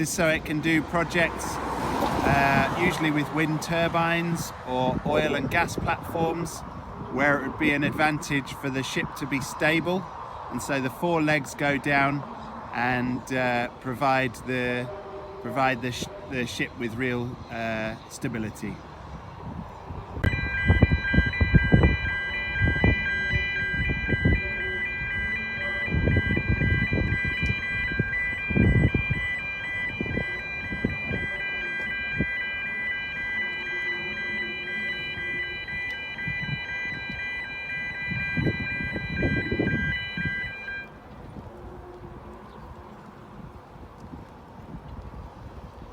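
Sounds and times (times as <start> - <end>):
level crossing warning alarm: 0.0 - 6.5, 20.2 - 41.6.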